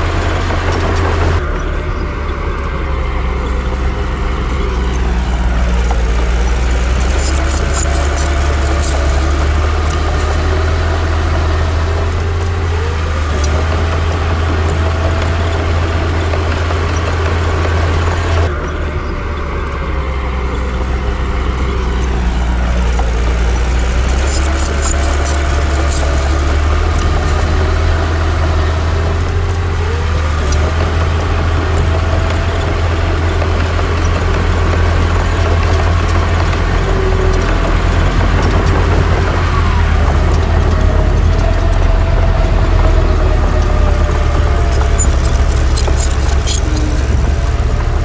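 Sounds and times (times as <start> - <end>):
diesel machinery rumbling: 0.0 - 48.0
sharp clicks and clanks: 0.0 - 48.0.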